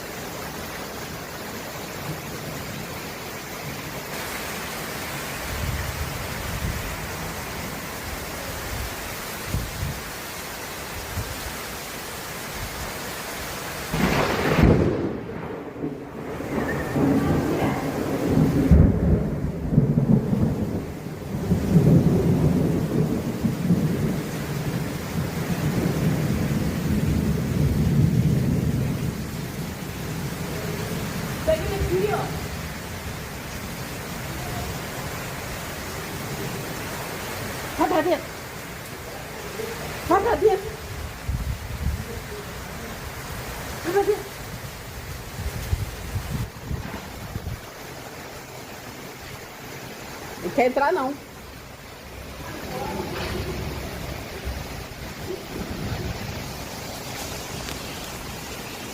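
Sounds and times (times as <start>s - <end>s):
storm rain: 0.0s - 58.9s
wind: 0.0s - 58.9s
wind gusts buffeting microphone: 13.9s - 32.9s, 40.1s - 42.4s, 44.4s - 47.8s
thunder rumbling: 13.9s - 39.1s, 43.0s - 58.9s.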